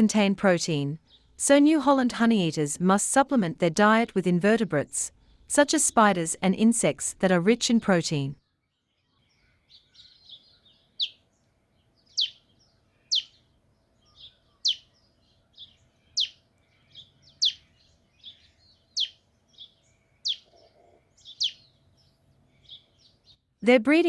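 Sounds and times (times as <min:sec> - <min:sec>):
soft bird chirps: 0:08.4 - 0:23.4
birds calling: 0:08.9 - 0:23.4.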